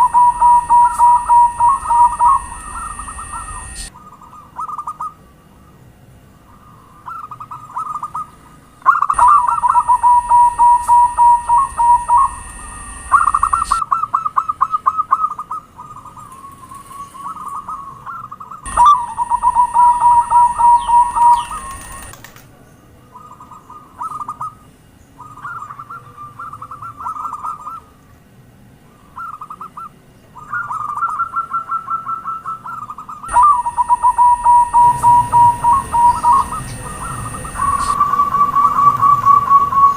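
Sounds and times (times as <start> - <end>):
high-pitched whine: 0.0 - 4.3, 8.4 - 14.2, 15.3 - 22.3, 33.2 - 39.9
doves cooing: 0.0 - 5.2, 6.5 - 22.4, 29.0 - 39.9.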